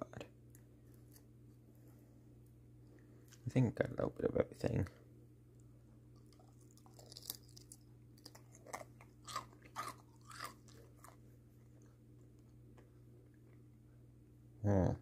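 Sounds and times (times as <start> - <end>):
steady low hum: 0.0 - 15.0
faint chewing: 5.6 - 13.9
small crunches: 6.1 - 13.6.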